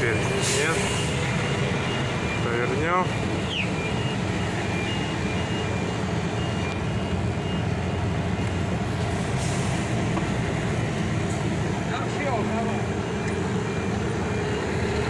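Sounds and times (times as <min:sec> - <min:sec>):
turn signal beeping: 0:00.0 - 0:08.9
diesel engine running: 0:00.0 - 0:15.0.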